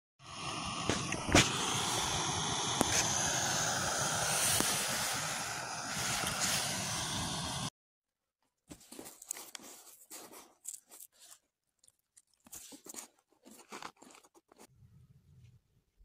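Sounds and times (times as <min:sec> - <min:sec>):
person chewing crunchy food: 0:09.0 - 0:14.7.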